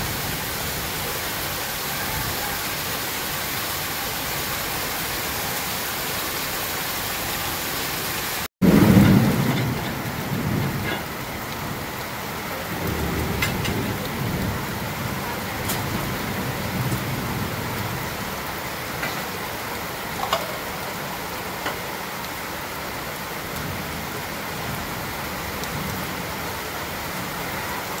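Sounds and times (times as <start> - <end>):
heavy rain pouring: 0.0 - 28.0
deep thunder rumble: 8.6 - 12.0, 12.6 - 18.3.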